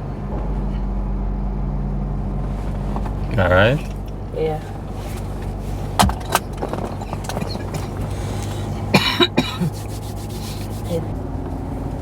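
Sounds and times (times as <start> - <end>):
car cabin drone: 0.0 - 12.0
person coughing: 8.8 - 9.8.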